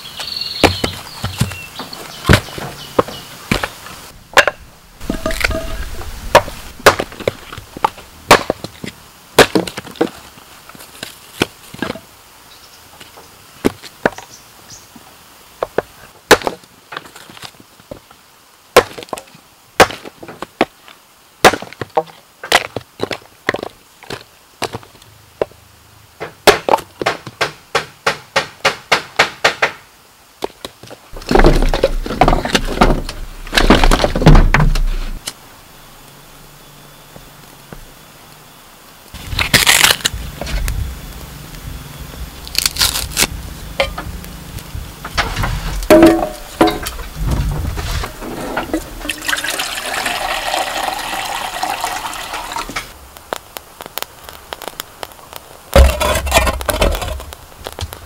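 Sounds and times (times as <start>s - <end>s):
bamboo splintering: 4.3s - 8.8s, 9.4s - 10.2s, 16.3s - 17.2s, 39.2s - 40.8s, 42.4s - 44.1s, 51.8s - 58.0s
tool striking bamboo: 4.4s - 7.4s, 45.1s - 47.0s, 55.7s - 57.3s.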